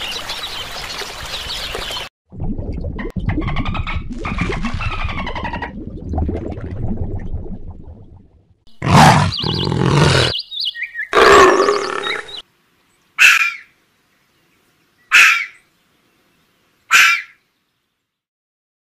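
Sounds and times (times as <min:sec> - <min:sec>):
animal calls: 0:08.8 - 0:10.4, 0:11.1 - 0:12.4.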